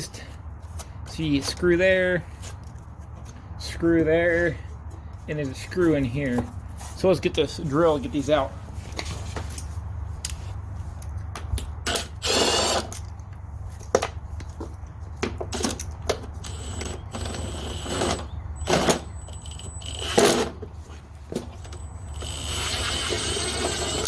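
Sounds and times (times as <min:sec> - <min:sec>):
power drill backing out screws: 0:15.5 - 0:20.7, 0:21.3 - 0:24.0
drill bit and screws clicking: 0:15.6 - 0:20.5.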